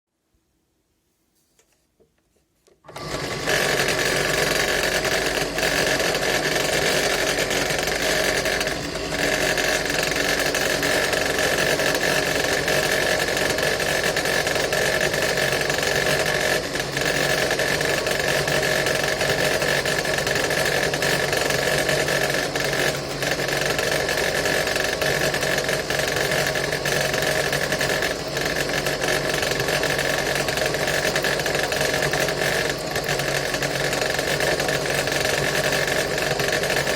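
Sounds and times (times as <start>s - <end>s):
drill press motor whining: 2.8s - 36.9s.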